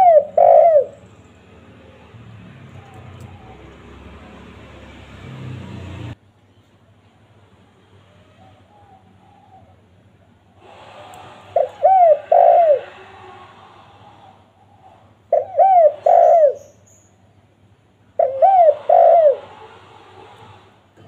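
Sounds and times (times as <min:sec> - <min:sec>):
dove cooing: 0:00.0 - 0:01.1, 0:01.8 - 0:05.2, 0:08.3 - 0:09.9, 0:10.6 - 0:16.8, 0:18.2 - 0:20.6.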